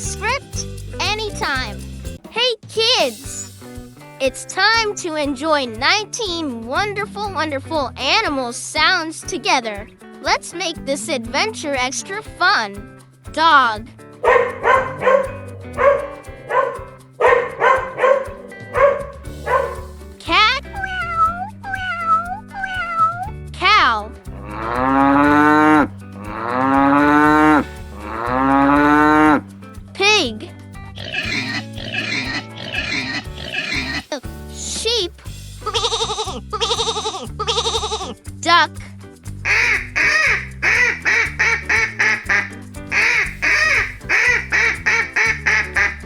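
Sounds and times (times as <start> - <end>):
background music: 0.0 - 46.0
cow mooing: 14.2 - 19.8, 24.4 - 29.4
duck quacking: 14.2 - 19.9, 31.0 - 34.2, 39.4 - 46.0.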